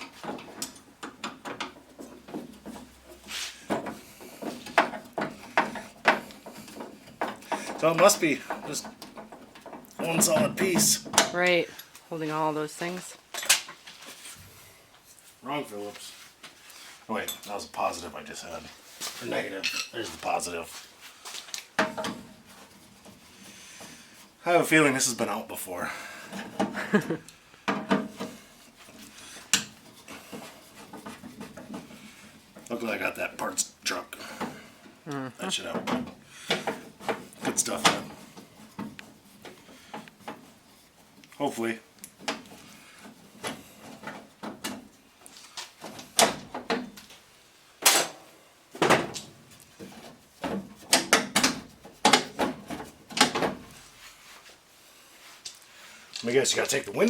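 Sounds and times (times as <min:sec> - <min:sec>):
hand tools clanking on metal: 0:00.0 - 0:11.4, 0:19.5 - 0:20.4
parts rubbing and scraping: 0:00.0 - 0:12.5, 0:13.3 - 0:47.5, 0:49.1 - 0:57.0.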